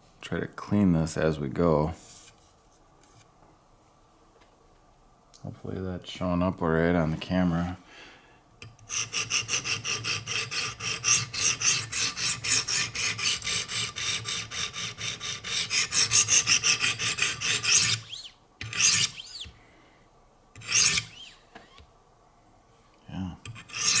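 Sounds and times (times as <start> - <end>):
sharpening stones scraping knife: 8.9 - 19.5, 20.6 - 21.4, 23.5 - 24.0.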